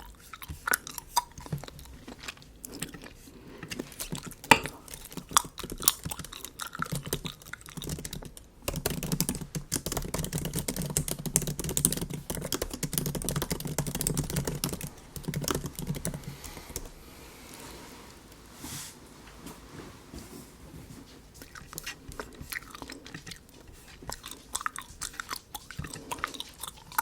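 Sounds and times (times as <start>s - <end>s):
laptop keyboard typing: 7.8s - 17.0s.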